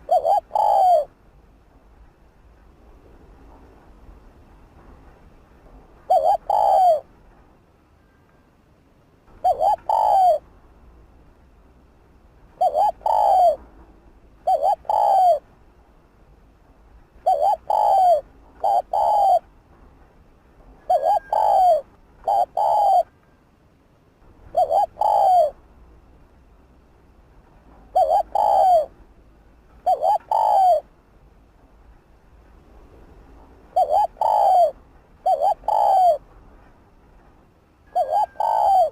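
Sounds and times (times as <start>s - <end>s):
dove cooing: 0.0s - 1.1s, 6.1s - 7.1s, 9.4s - 10.4s, 12.6s - 13.6s, 14.4s - 15.4s, 17.2s - 19.4s, 20.8s - 23.2s, 24.5s - 25.6s, 27.9s - 28.9s, 29.8s - 30.9s, 33.7s - 36.2s, 37.9s - 38.9s.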